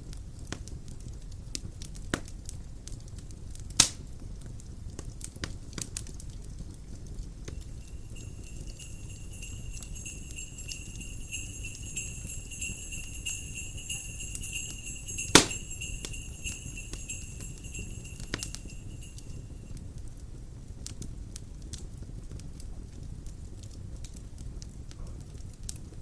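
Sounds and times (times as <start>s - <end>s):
crackling fireplace fire: 0.1s - 26.0s
sleigh bells jingling: 7.5s - 19.7s.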